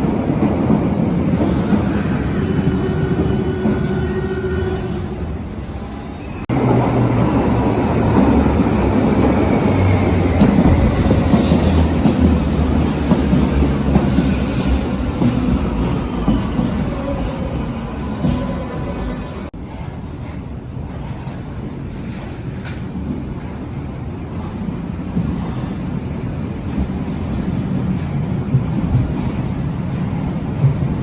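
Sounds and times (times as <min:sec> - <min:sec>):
train hum: 0:00.0 - 0:31.0
train wheels rumbling on track: 0:00.0 - 0:31.0.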